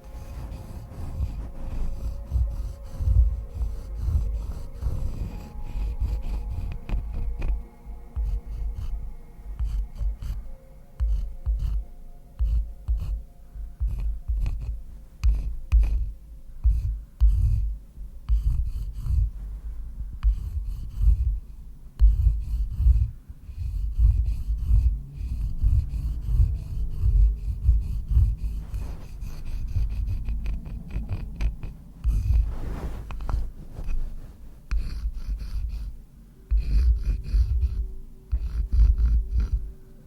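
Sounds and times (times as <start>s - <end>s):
scratching and rubbing: 0.0s - 21.4s, 22.0s - 39.7s
heavy low thuds: 22.0s - 37.8s.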